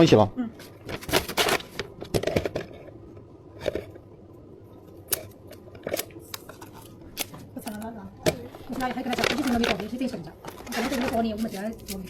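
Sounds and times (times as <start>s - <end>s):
drink cups and packaging clicking: 5.0s - 12.0s.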